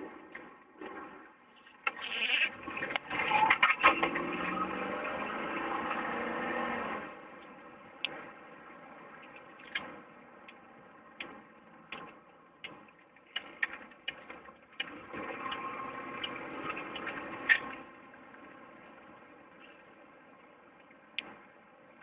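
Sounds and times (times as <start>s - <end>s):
car engine from inside cabin: 2.6s - 22.0s
irregular clicks and knocks: 11.2s - 17.7s.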